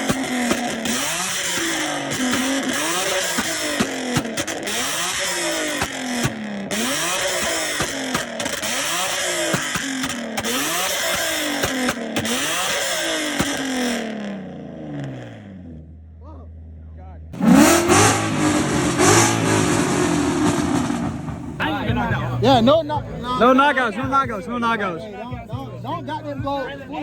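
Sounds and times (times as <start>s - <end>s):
exhaust pops: 0.0s - 15.7s, 17.4s - 22.7s
car engine revving: 0.0s - 23.6s.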